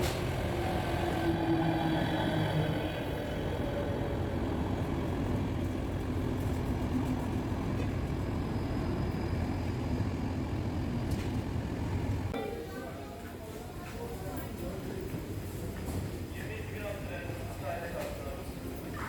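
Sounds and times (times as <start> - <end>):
train rumbling: 0.0 - 12.4.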